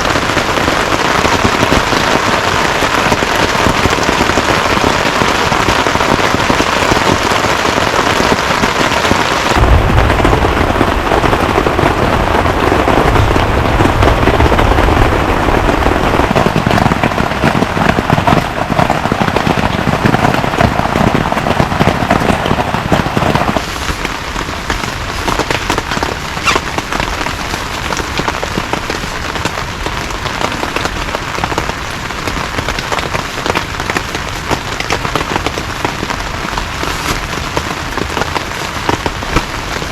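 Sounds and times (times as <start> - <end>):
heavy rain falling: 0.0 - 39.9
low rumble: 9.6 - 16.6.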